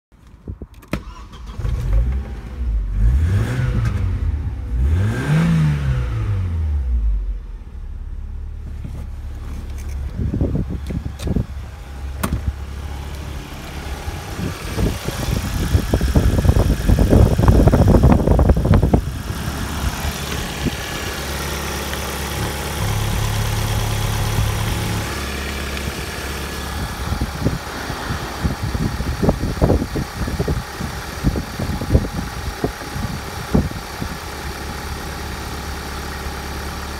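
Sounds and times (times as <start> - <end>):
deeper engine hum: 1.5 - 36.9
car engine idling: 6.0 - 36.9
rubbing and knocks of handling: 8.6 - 10.1.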